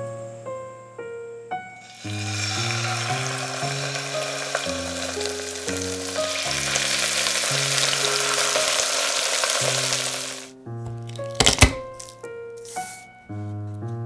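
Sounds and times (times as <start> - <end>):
chicken sizzling in hot oil: 1.8 - 10.5.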